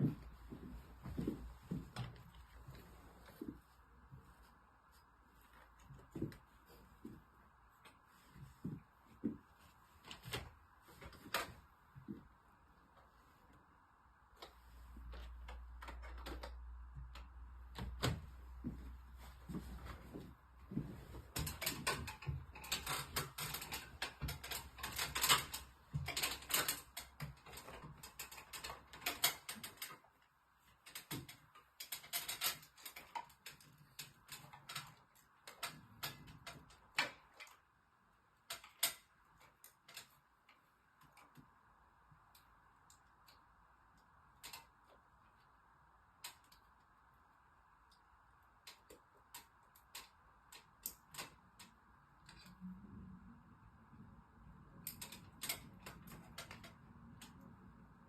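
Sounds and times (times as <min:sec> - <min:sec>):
hand tools clicking and rattling: 0:20.8 - 0:30.1, 0:30.8 - 0:37.6, 0:54.8 - 0:57.5.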